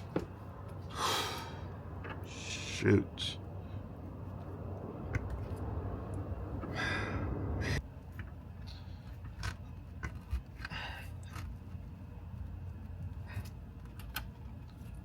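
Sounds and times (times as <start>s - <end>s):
man gasping and breathing hard: 0.9s - 1.7s, 6.7s - 7.8s
rushing noise: 4.1s - 7.8s.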